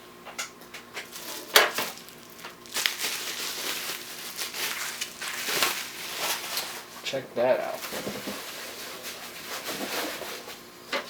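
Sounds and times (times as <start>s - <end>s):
plastic packaging crinkling: 1.0s - 7.0s, 7.6s - 10.5s.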